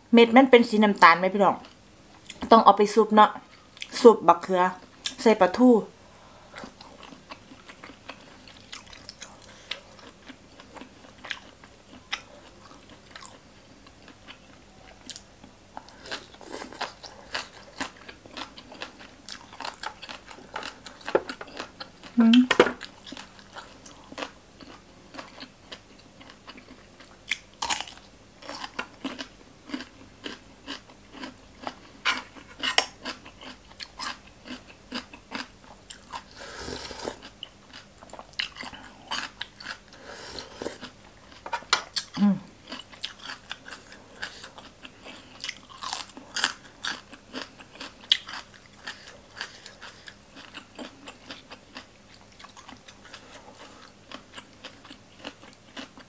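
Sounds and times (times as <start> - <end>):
slurping broth from a spoon: 36.3 - 37.3, 40.0 - 40.8.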